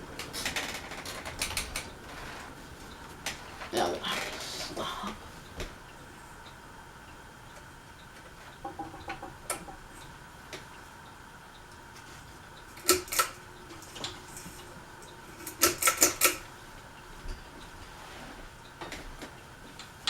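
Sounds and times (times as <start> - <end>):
faint steady hum: 0.0 - 20.0
sharp mechanical clicks: 12.8 - 13.4, 15.4 - 16.4.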